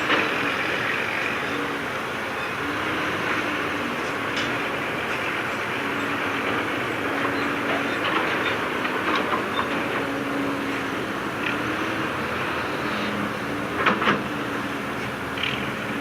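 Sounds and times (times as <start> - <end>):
diesel engine running: 0.0 - 16.0
metallic clanks and squeaks: 7.4 - 10.0.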